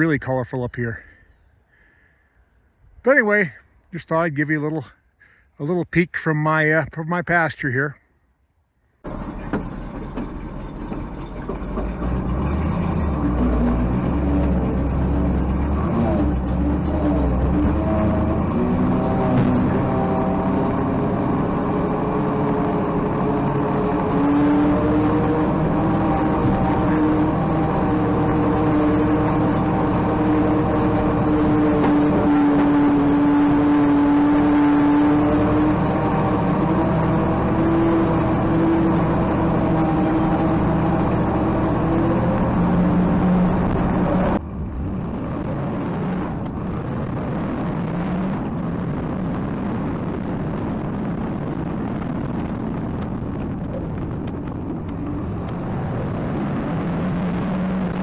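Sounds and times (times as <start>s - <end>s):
rough machinery drone: 8.9s - 58.0s
large vehicle engine running: 9.0s - 58.0s.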